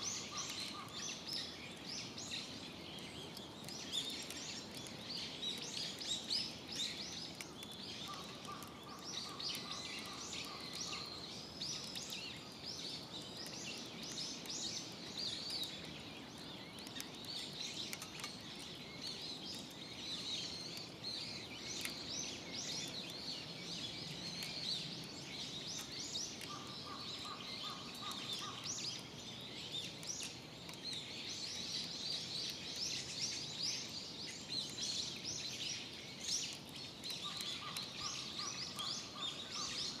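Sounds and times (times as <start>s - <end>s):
birds chirping in chorus: 0.0s - 40.0s.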